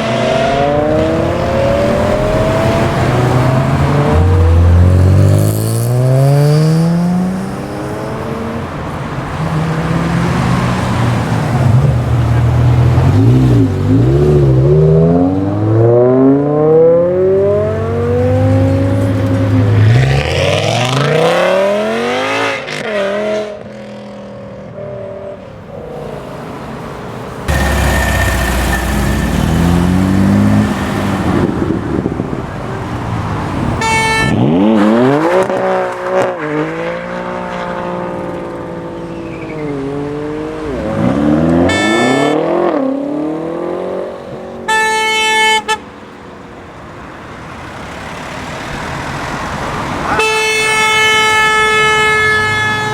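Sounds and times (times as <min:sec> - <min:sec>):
cars accelerating hard: 0:00.0 - 0:24.2, 0:27.4 - 0:44.7
brief sharp high sounds: 0:27.5 - 0:30.3.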